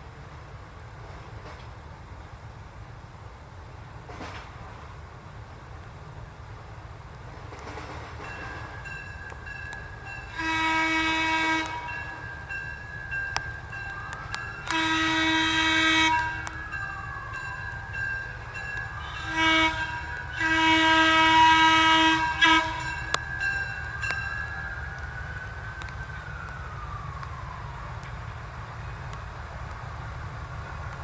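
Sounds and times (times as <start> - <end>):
train whistle blasts: 10.0 - 12.5, 13.8 - 17.5, 18.6 - 24.7.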